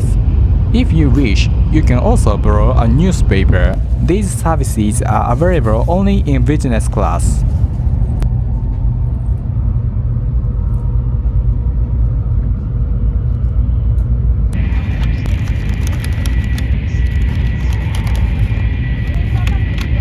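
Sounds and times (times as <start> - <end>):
train rumble inside passenger car: 0.0 - 20.0
small scattered clicks: 14.7 - 19.9.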